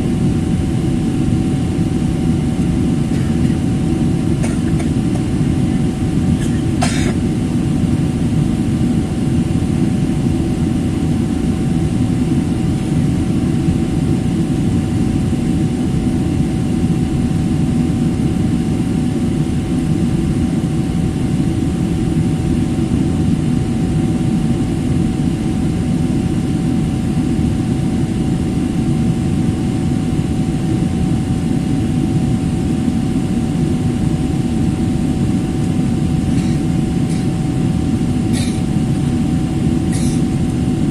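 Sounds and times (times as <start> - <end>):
jet engine cabin rumble: 0.0 - 40.9.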